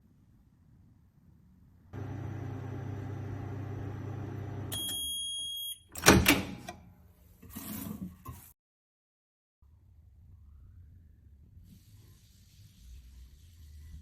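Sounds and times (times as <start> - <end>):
microwave oven humming: 2.0 - 6.7.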